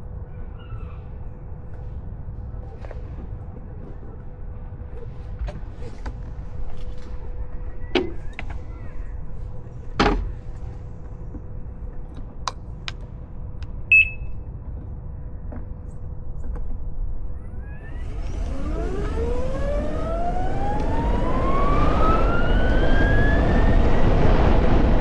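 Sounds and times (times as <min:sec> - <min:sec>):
short high beep: 0:13.9 - 0:14.3
electric motor whine: 0:17.6 - 0:24.3.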